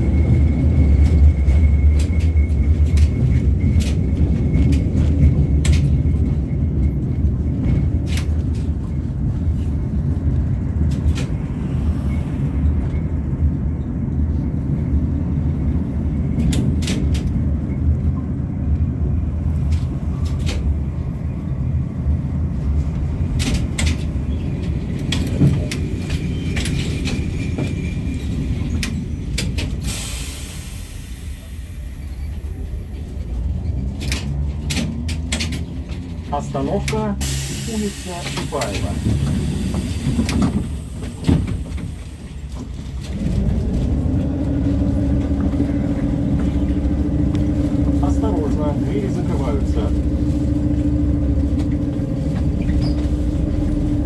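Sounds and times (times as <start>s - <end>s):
tram wheels rumbling on rails: 0.0s - 54.0s.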